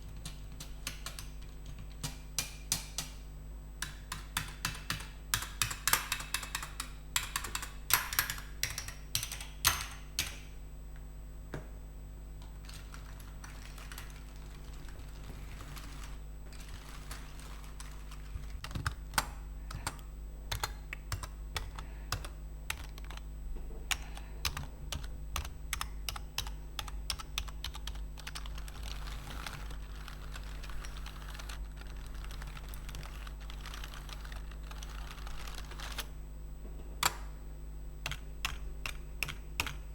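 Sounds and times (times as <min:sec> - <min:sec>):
faint low hum: 0:00.0 - 0:39.9.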